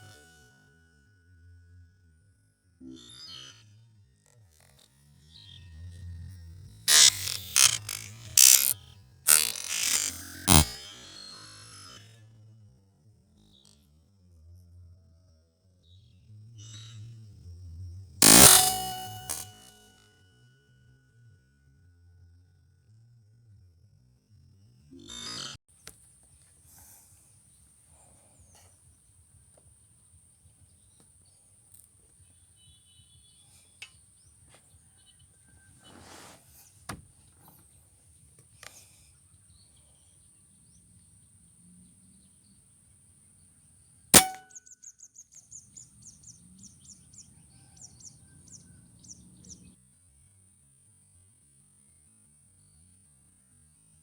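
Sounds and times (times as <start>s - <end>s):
air rifle shot: 44.2s - 44.5s.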